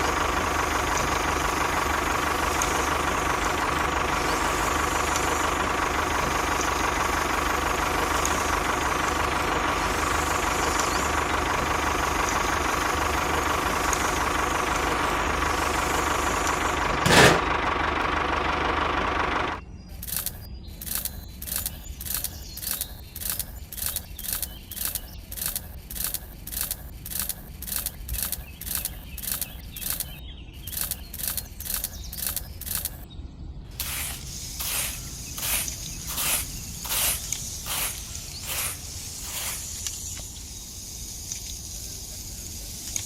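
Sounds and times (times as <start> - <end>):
water spraying in hissing spurts: 33.7 - 43.0.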